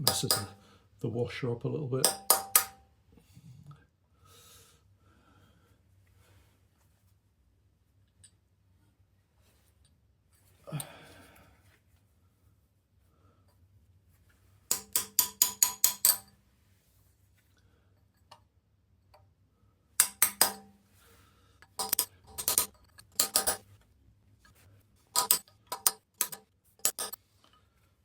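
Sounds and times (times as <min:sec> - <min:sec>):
tool tapping on metal: 0:00.0 - 0:00.6, 0:02.0 - 0:02.8, 0:14.7 - 0:16.3, 0:20.0 - 0:20.8, 0:21.7 - 0:23.6, 0:25.2 - 0:27.2.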